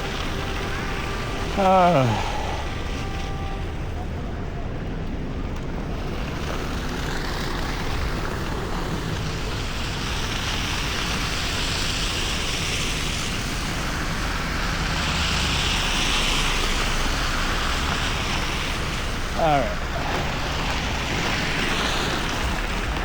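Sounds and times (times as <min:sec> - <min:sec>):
road and wind noise: 0:00.0 - 0:23.0
tyre hiss of passing vehicles: 0:00.0 - 0:23.0.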